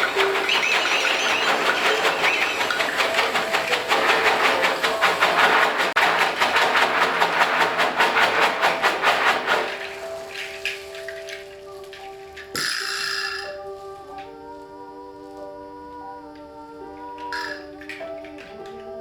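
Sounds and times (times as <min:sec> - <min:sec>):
hissing train-like chugging: 0:00.0 - 0:13.5.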